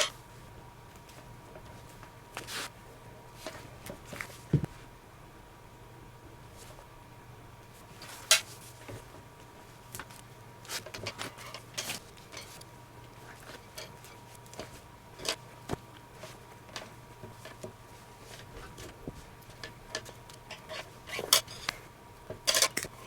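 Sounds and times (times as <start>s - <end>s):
faint steady hum: 0.0s - 23.0s
clicks taps and rustles: 9.9s - 23.0s.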